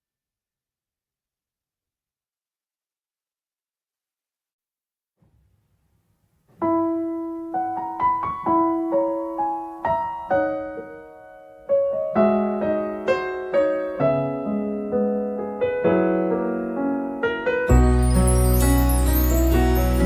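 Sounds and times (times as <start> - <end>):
slow solo piano melody: 6.5 - 20.0.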